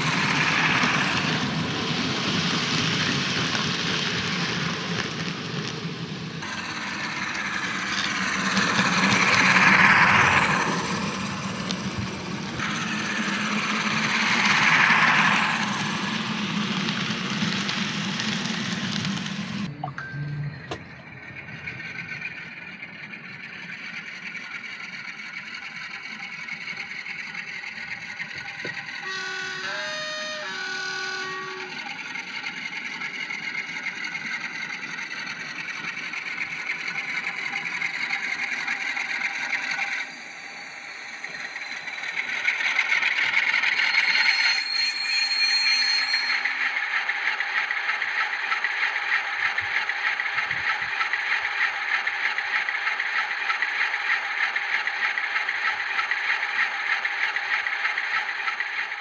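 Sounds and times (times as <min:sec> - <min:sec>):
model locomotive engine sound: 0:00.0 - 0:59.0
two-tone horn: 0:28.8 - 0:32.1.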